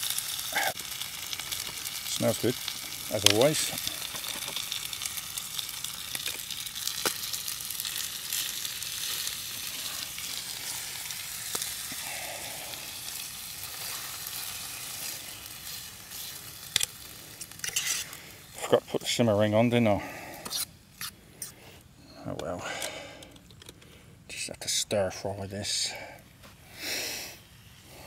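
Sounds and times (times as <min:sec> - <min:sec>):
chicken sizzling in hot oil: 0:00.0 - 0:19.0
fork clicking and scraping: 0:16.7 - 0:18.1, 0:20.4 - 0:21.6.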